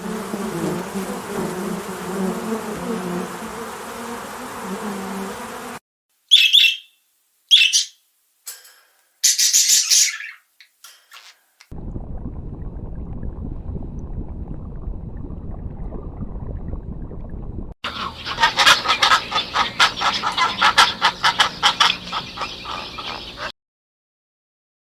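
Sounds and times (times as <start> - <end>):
poultry calling loudly: 6.3 - 8.0, 17.9 - 23.5
low steady rumbling: 11.7 - 23.1.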